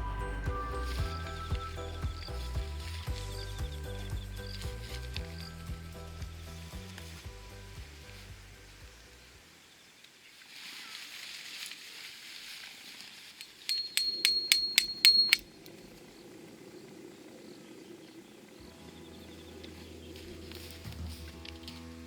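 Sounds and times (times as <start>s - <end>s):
background music: 0.0s - 9.5s, 18.6s - 22.0s
sharp metallic clicks: 13.4s - 15.5s
high ringing tone: 13.4s - 15.6s.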